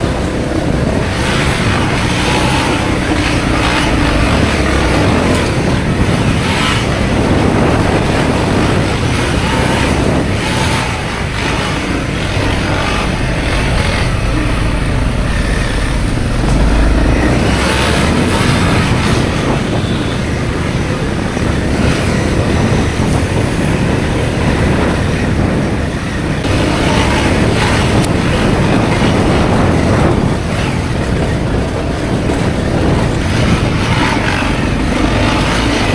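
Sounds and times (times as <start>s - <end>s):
motorcycle engine running: 0.0s - 35.9s
wind and road noise: 0.0s - 35.9s.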